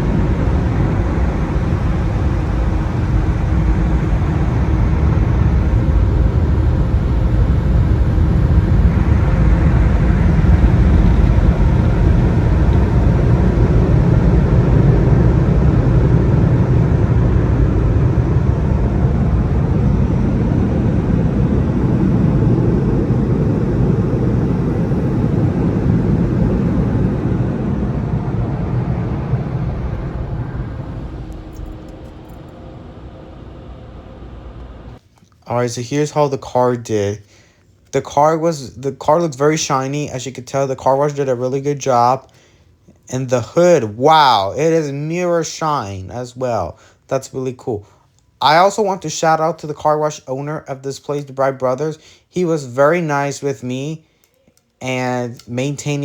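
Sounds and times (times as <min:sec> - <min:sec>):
car wash machinery rushing: 0:00.0 - 0:35.0
low hum: 0:00.0 - 0:35.0.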